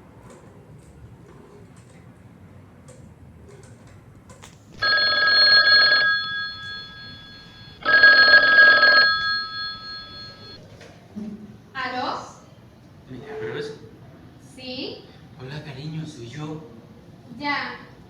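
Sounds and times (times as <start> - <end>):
telephone ringing: 4.8 - 10.6.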